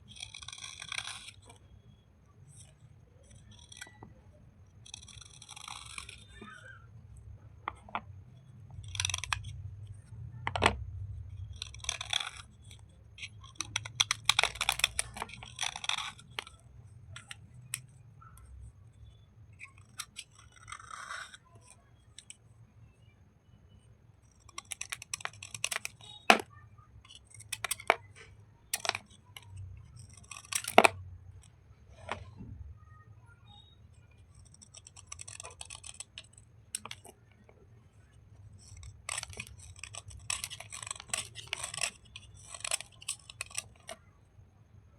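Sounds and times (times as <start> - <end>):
slate and clay crunching: 38.4 - 44.1.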